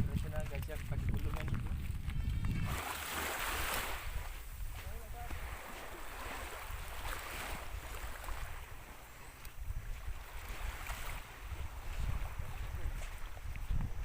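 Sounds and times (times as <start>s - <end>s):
wind rumbling on microphone: 0.0s - 14.0s
sea waves washing on shore: 2.6s - 13.7s.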